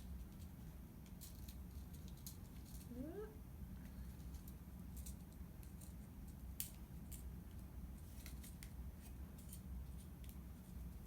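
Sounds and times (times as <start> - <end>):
ornament clicking and rustling: 0.0 - 2.9
low steady hum: 0.0 - 11.0.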